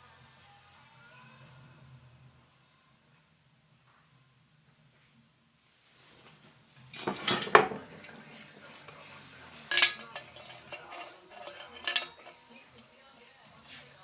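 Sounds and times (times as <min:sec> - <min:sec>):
light metal rattling: 0:07.0 - 0:13.7
metal pieces clinking: 0:09.7 - 0:12.4.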